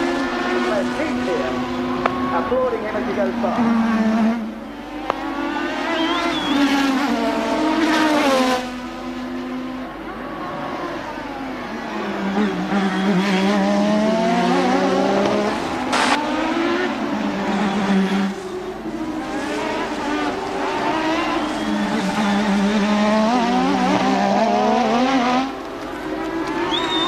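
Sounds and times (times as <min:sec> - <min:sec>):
racing car engines passing: 0:00.0 - 0:27.0
sharp crack: 0:15.9 - 0:16.2.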